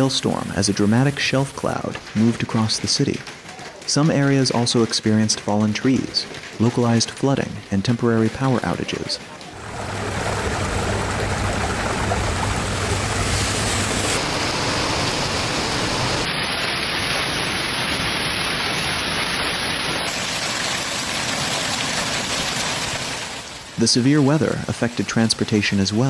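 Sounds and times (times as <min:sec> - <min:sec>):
running water: 0:00.0 - 0:17.0
heavy rain: 0:00.0 - 0:24.1.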